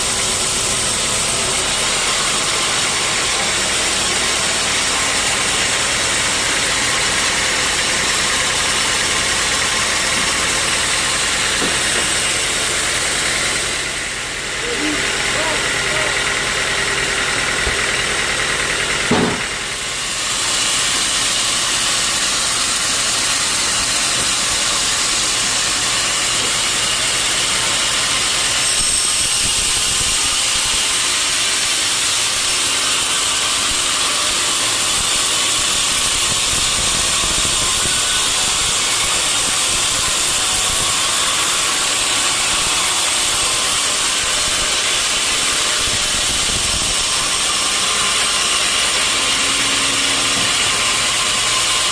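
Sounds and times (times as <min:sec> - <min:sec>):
engine drone: 0:00.0 - 0:51.9
saw cutting through log: 0:00.0 - 0:51.9
short knock: 0:19.1 - 0:19.5.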